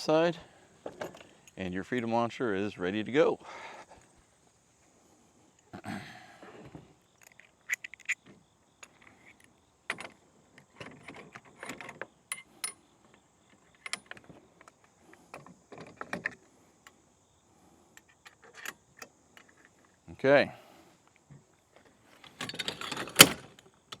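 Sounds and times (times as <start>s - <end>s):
metallic clinks and rattles: 0.8s - 1.6s, 7.1s - 16.4s, 18.0s - 20.0s.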